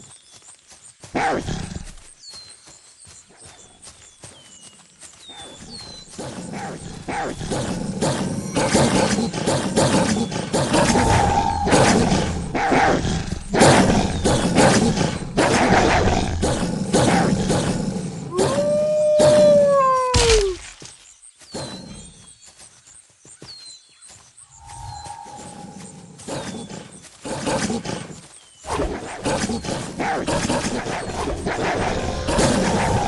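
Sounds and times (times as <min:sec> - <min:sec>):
wolves snarling and growling: 0:05.4 - 0:18.4, 0:24.9 - 0:33.0.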